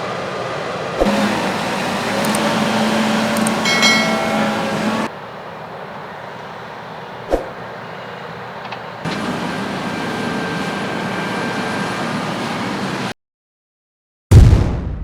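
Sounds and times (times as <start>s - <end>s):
farm machinery running: 0.0s - 13.1s
sharp click: 2.2s - 2.5s.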